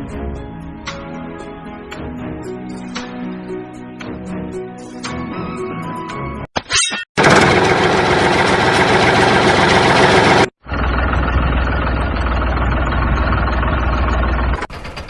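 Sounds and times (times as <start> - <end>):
vehicle engine running loudly: 7.2 - 15.0
engine idling with low rumble: 8.0 - 15.0.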